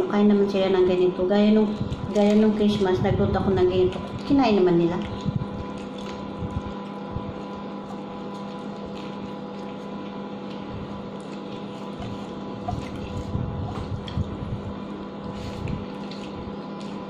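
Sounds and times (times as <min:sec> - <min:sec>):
steady background hum: 0:00.0 - 0:17.0
wet chewing and mouth sounds: 0:03.8 - 0:17.0.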